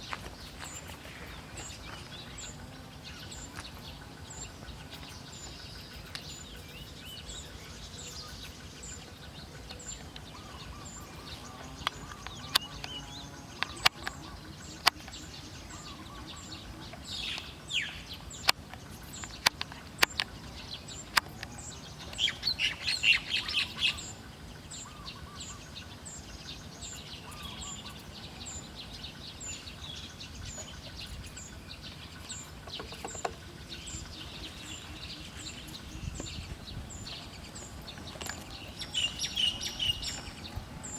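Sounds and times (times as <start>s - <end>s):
wild birds chirping: 0.0s - 40.9s
sharp clicks: 13.6s - 14.2s, 18.3s - 20.4s.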